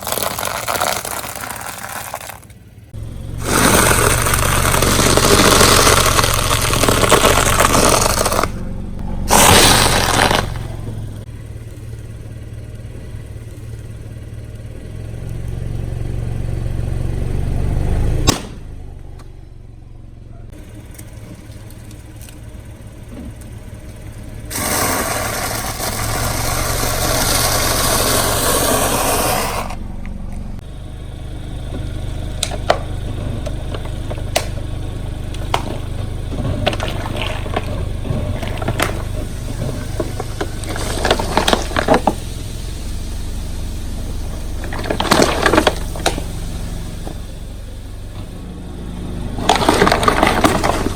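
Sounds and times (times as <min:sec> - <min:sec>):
sharp crack: 0:00.0 - 0:11.3, 0:18.2 - 0:18.8, 0:23.3 - 0:30.7, 0:31.7 - 0:48.4
loud hissing: 0:00.0 - 0:13.8, 0:23.7 - 0:50.9
things crushed under tyres: 0:00.0 - 0:13.8, 0:20.5 - 0:42.6, 0:43.2 - 0:48.6, 0:49.2 - 0:50.9
car engine running slowly: 0:00.0 - 0:50.9.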